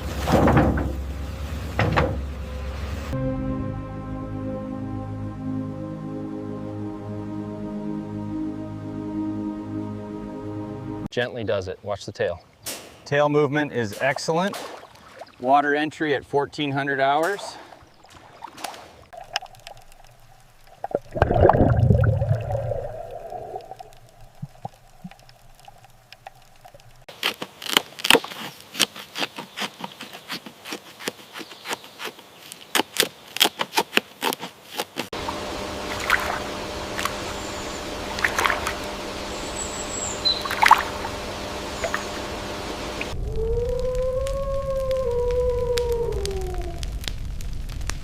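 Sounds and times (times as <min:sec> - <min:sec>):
beaver splashing into water: 0:14.4 - 0:15.5, 0:17.3 - 0:25.1, 0:35.9 - 0:37.2
trickling water clicks: 0:17.1 - 0:27.1, 0:40.4 - 0:41.0
steady hum: 0:19.7 - 0:27.0, 0:35.2 - 0:43.3.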